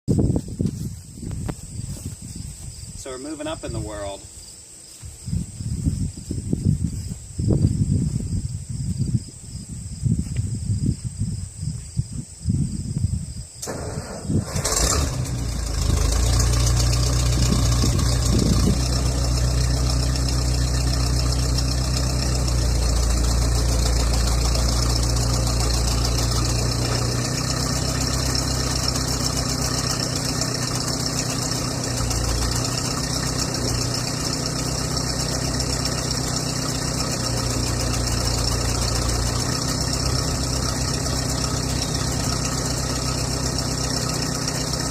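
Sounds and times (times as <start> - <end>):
backhoe diesel engine idling: 13.6 - 44.9.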